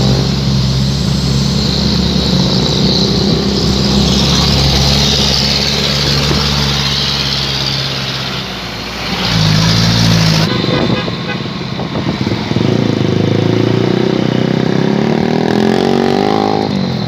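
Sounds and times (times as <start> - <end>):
truck engine running: 0.0 - 14.1.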